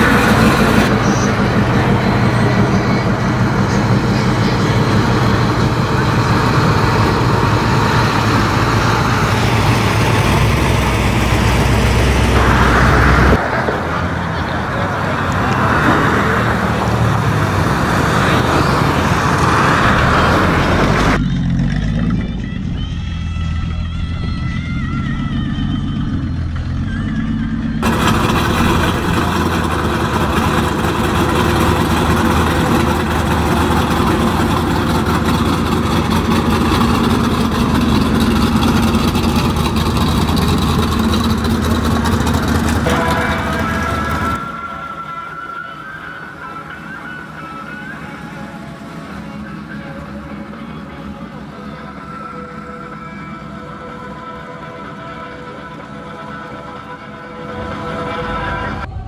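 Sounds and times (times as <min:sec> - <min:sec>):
hot rod engines roaring: 0:00.0 - 0:59.0
music: 0:22.0 - 0:27.8, 0:42.9 - 0:59.0.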